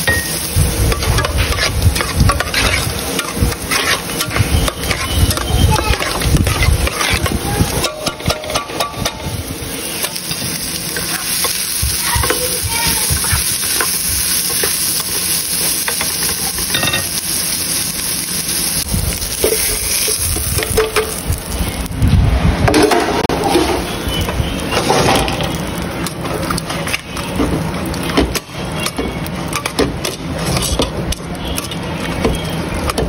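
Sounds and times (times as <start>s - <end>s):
hot dogs sizzling in pan: 0.0s - 33.0s
spoon stirring in metal pot: 0.9s - 9.2s.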